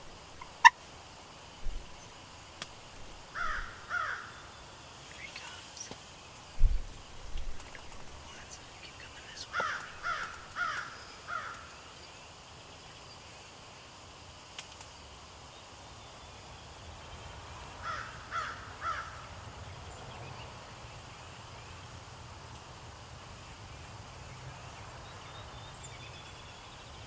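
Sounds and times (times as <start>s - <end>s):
crow cawing: 3.3s - 4.5s, 9.5s - 11.7s, 17.8s - 19.2s.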